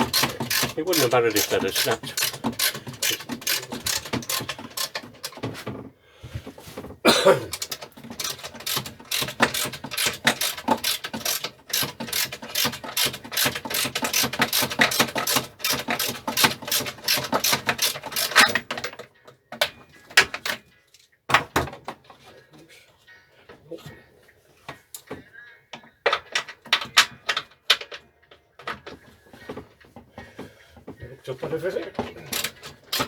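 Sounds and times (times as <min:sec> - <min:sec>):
ratchet wrench clicking: 0:00.0 - 0:05.0, 0:07.6 - 0:16.1.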